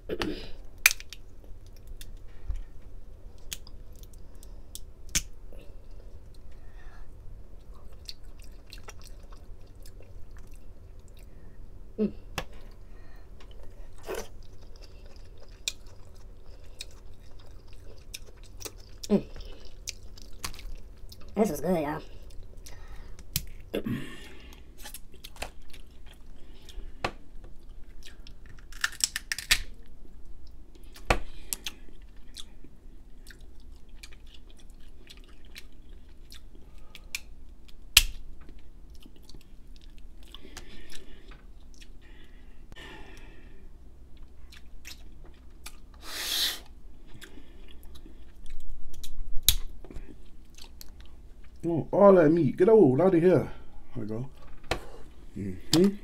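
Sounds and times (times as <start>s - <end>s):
crab shell cracking: 0.8s - 2.2s, 28.1s - 29.9s, 37.9s - 38.2s
chewing and crunching: 7.5s - 11.5s, 13.4s - 21.4s, 24.3s - 42.4s, 44.0s - 46.0s, 47.0s - 51.7s.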